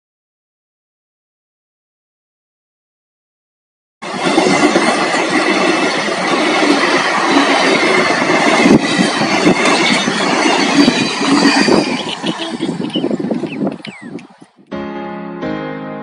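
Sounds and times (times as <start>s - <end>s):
train rumbling on rails: 4.0s - 14.7s
faint high squeal: 8.6s - 13.1s.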